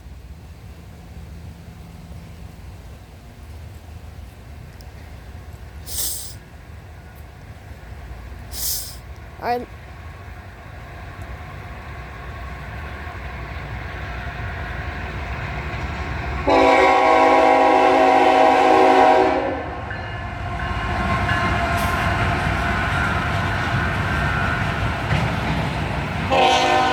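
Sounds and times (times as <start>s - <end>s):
freight locomotive rumbling: 0.0s - 26.9s
train air horn blast: 16.4s - 19.8s, 26.3s - 26.9s.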